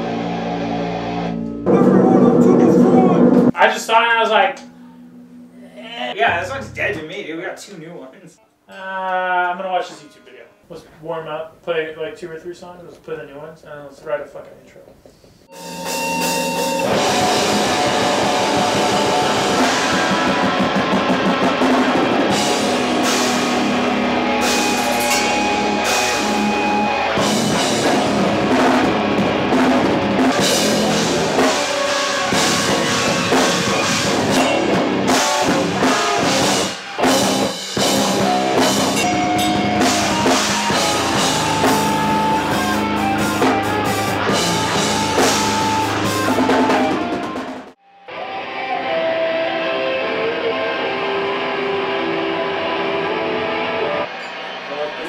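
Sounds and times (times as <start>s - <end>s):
rock band playing loudly: 0.0s - 3.6s, 15.5s - 55.0s.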